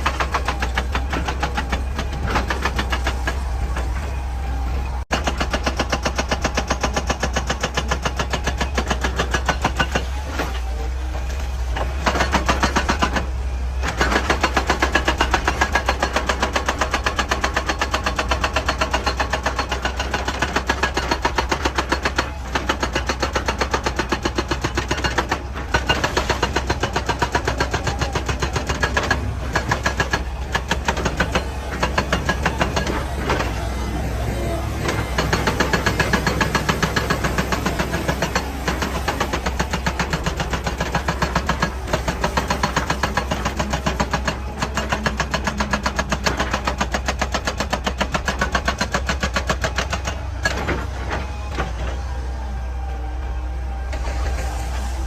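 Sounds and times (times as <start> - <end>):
excavator diesel engine: 0.0 - 55.0.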